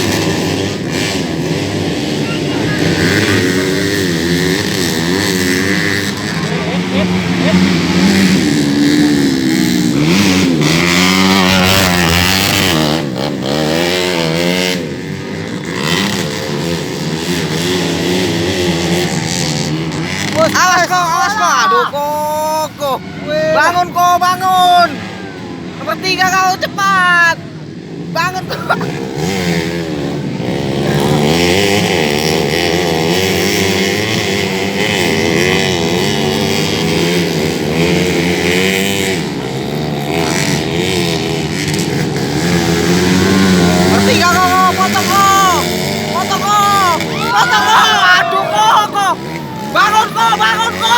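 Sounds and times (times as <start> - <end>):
racing motorcycles revving: 0.0 - 50.9.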